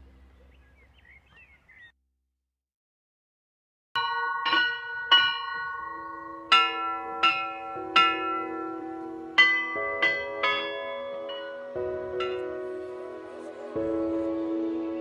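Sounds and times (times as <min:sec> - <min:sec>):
bells ringing: 0:04.0 - 0:13.6.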